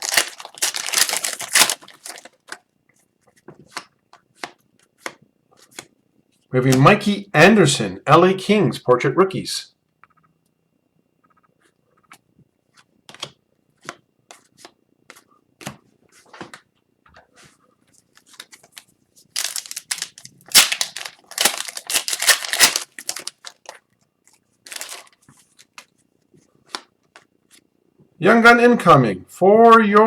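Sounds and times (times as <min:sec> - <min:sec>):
wrapper tearing and crinkling: 0:00.0 - 0:02.6, 0:19.3 - 0:23.8, 0:24.7 - 0:25.2
trading cards clicking: 0:19.4 - 0:23.4.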